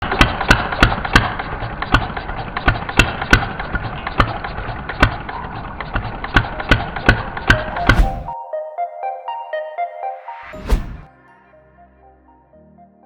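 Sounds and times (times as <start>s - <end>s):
small gasoline engine running: 0.0s - 7.5s.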